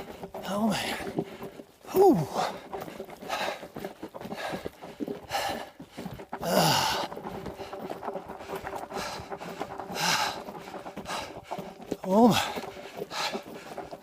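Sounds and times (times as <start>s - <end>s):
man panting hard: 0.0s - 14.0s
man groaning: 1.9s - 2.4s.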